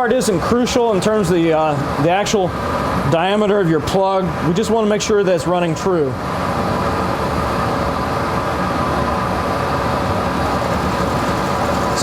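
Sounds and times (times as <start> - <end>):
lathe running: 10.0 - 12.0.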